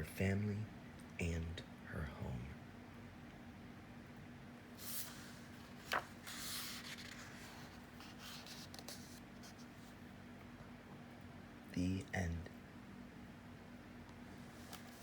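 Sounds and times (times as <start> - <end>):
faint steady hum: 0.0 - 15.0
book page rustling: 4.8 - 9.9, 14.4 - 15.0.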